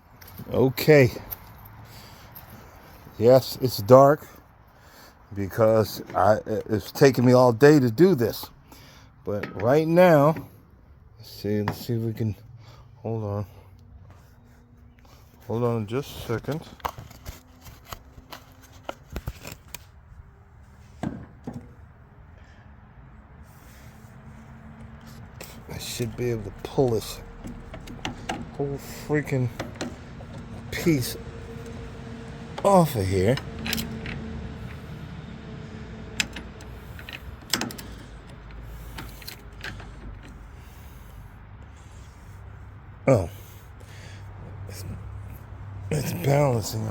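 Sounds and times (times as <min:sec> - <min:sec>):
steady low rumble: 0:21.8 - 0:42.7
tools clicking and tapping: 0:26.6 - 0:28.6, 0:29.5 - 0:30.8, 0:36.1 - 0:40.4.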